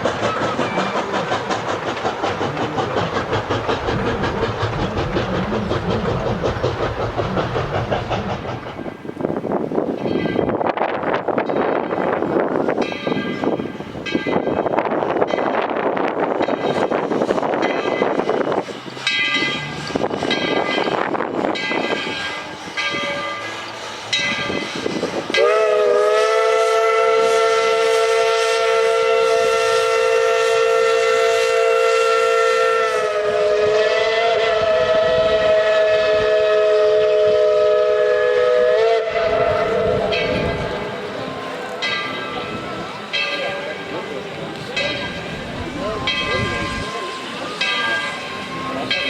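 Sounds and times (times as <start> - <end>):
steam whistle blast: 24.6 - 40.3.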